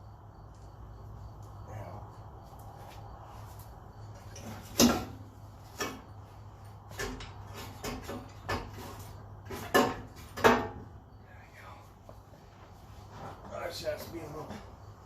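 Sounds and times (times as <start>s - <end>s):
metal clunks and knocks: 4.2s - 6.2s, 6.9s - 11.0s.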